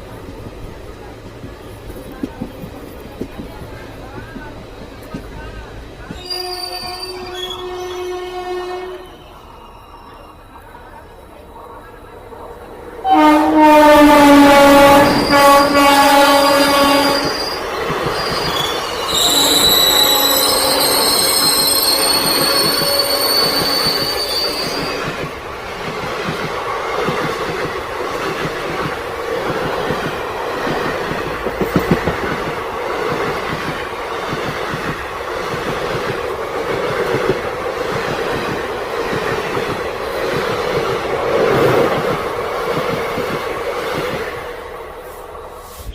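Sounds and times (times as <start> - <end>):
train rolling rumble: 0.0 - 45.9
train wheel squeal: 6.1 - 12.0, 16.8 - 25.2
wheels clacking over rail joints: 17.0 - 44.4.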